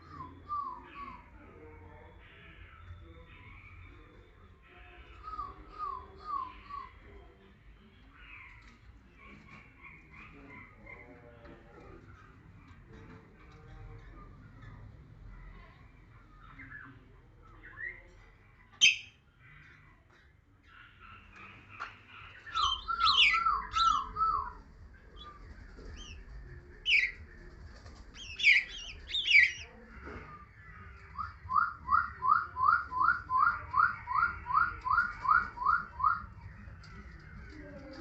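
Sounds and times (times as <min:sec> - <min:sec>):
bird chirping: 0:16.3 - 0:19.8, 0:20.7 - 0:38.0.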